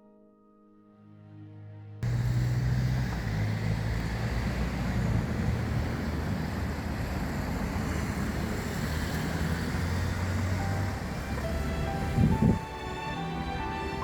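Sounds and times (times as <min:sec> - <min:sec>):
piano music: 0:00.0 - 0:02.0, 0:10.0 - 0:14.0.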